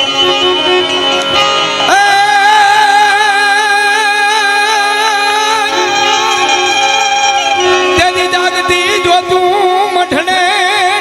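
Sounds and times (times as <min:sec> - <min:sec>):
devotional folk song: 0:00.0 - 0:11.0
person singing with vibrato: 0:01.8 - 0:11.0
steady drone: 0:01.9 - 0:09.2.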